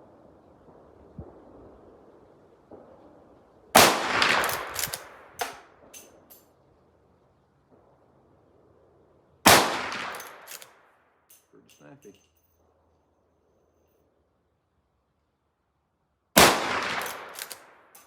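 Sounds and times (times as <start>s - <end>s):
rifle shot echoing: 3.8s - 5.9s, 9.5s - 10.7s, 16.4s - 17.8s
rifle lever metallic clicks: 4.4s - 6.4s, 10.0s - 11.9s, 17.0s - 18.0s.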